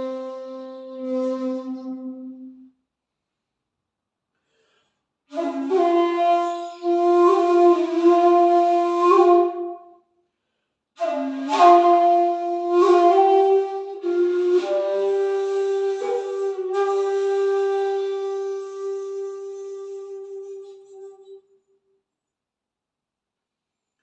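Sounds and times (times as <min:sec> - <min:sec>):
breathy bamboo flute notes: 0:00.0 - 0:02.7, 0:05.3 - 0:09.9, 0:11.0 - 0:21.8.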